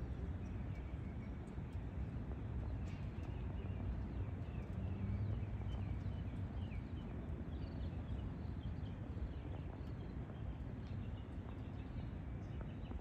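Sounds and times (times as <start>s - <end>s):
low rumble of background noise: 0.0s - 13.0s.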